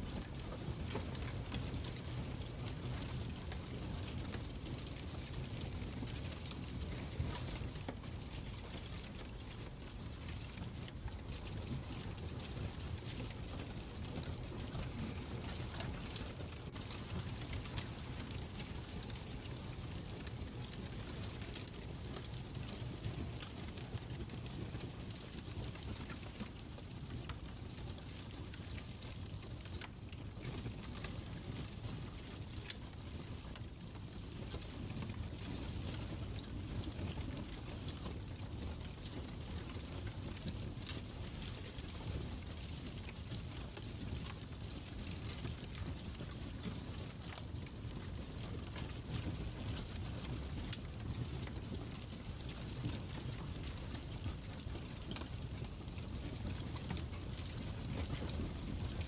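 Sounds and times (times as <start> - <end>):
low rumble of burning logs: 0.0 - 59.0
fire pops and snaps: 3.2 - 24.4.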